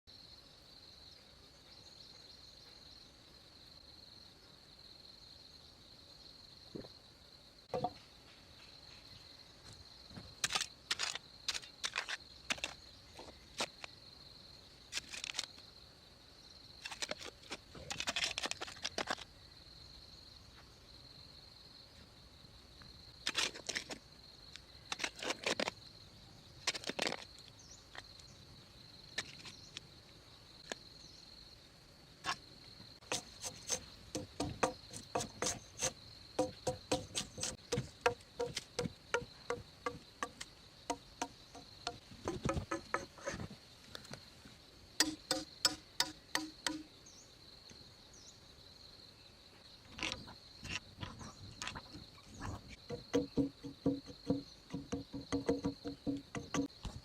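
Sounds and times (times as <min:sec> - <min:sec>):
insects chirring: 0:00.1 - 0:57.0
sharp clicks and knocks: 0:33.0 - 0:43.4, 0:45.0 - 0:46.9, 0:52.9 - 0:57.0.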